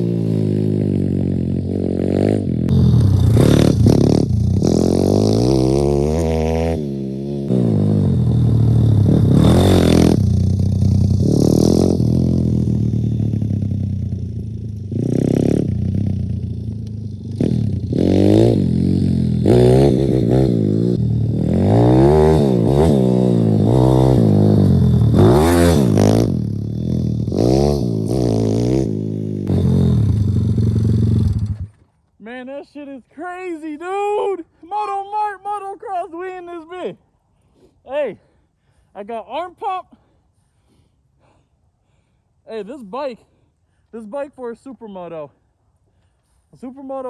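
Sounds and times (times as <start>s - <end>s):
pit bike engine revving: 0.0s - 31.8s.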